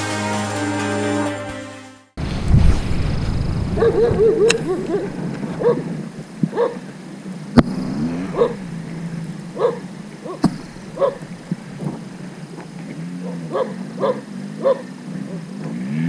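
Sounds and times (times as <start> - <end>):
low rumble: 2.2 - 6.6, 7.3 - 13.0
dog yipping: 3.8 - 5.9, 6.5 - 6.8, 8.2 - 8.7, 9.5 - 11.4, 13.2 - 14.9
sharp clicks: 4.3 - 5.8.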